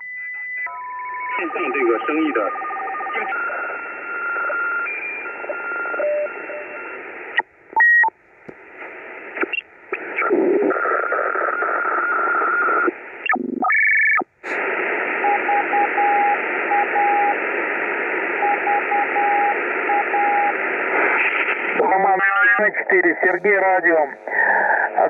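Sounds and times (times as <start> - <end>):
radio static hiss: 1.4 - 4.5, 5.3 - 7.5, 8.1 - 25.0
morse code beeps: 3.2 - 7.0, 15.2 - 17.4, 18.3 - 20.6.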